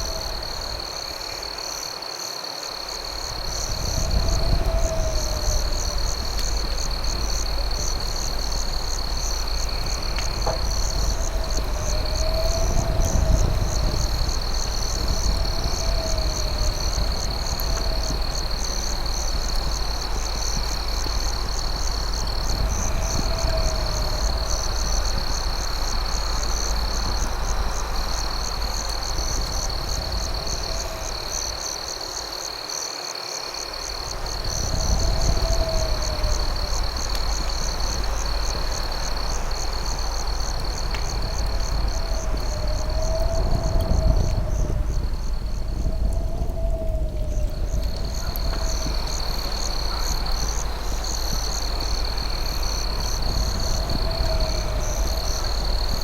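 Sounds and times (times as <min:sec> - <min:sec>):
crickets trilling: 0:00.0 - 0:56.0
low rumble: 0:03.0 - 0:32.1, 0:34.0 - 0:56.0.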